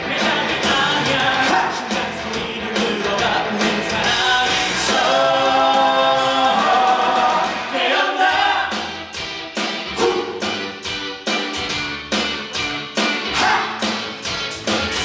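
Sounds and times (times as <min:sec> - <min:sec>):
cast singing together: 0:00.0 - 0:09.0
loud musical accompaniment: 0:00.0 - 0:15.0.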